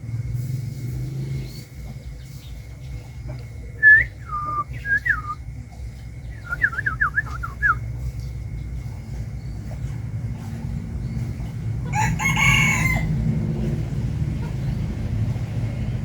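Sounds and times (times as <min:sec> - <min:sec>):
bird whistling: 0:03.8 - 0:05.4, 0:06.3 - 0:07.9.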